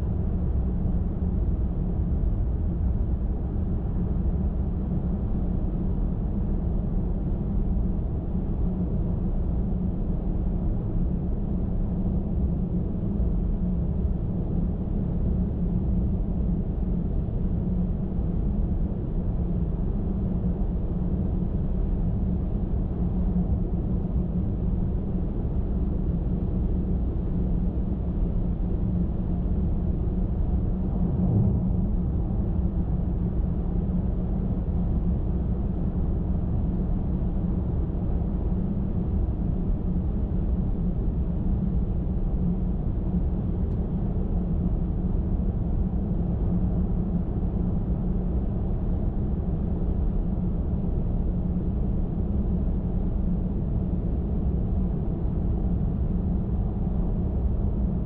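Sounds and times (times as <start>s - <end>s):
car driving at highway speed: 30.7s - 33.4s.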